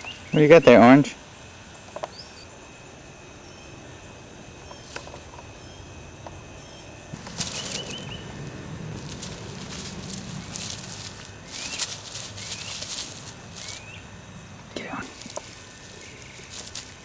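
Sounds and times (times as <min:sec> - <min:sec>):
bird wings flapping: 0:07.2 - 0:14.0.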